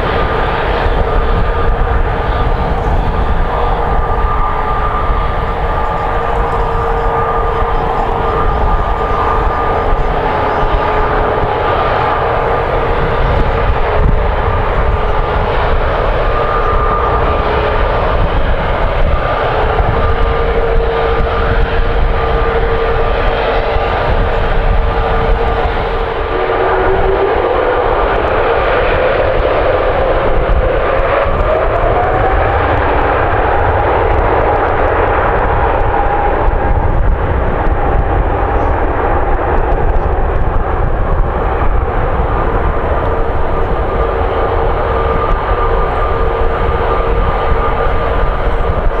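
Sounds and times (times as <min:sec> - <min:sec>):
jet engines roaring with high whine: 0:00.0 - 0:49.0.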